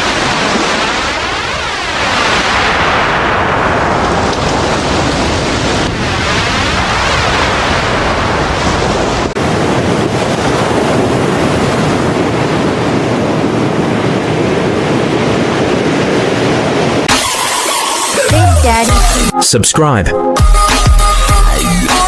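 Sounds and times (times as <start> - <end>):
wind buffeting microphone: 0.0 - 17.1
crashing waves: 0.0 - 18.6.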